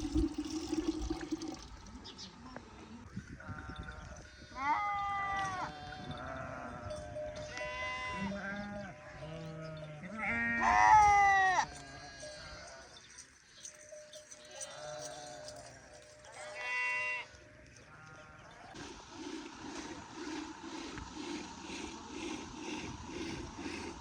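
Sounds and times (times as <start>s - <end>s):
sheep or goats bleating: 3.5s - 13.0s, 16.4s - 18.6s.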